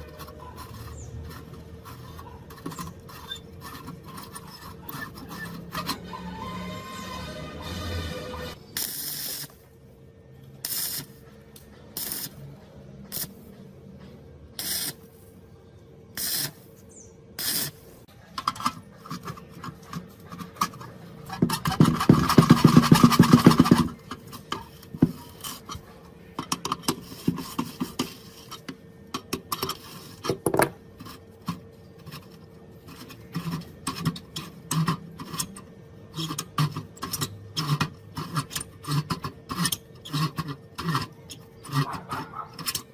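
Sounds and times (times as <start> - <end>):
scraping and rubbing on metal: 0.0 - 8.6, 16.2 - 42.9
short hissing bursts: 17.4 - 17.8
rapid mechanical rattle: 18.4 - 28.1.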